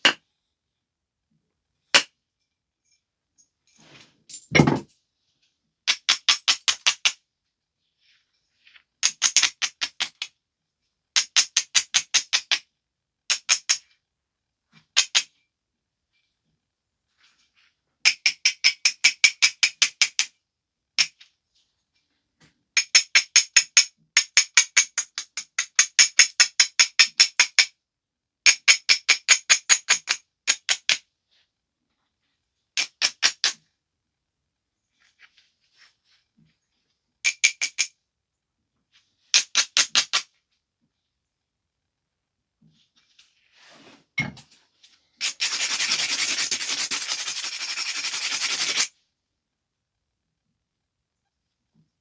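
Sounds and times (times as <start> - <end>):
abrader rubbing on flint edge: 45.2 - 48.9.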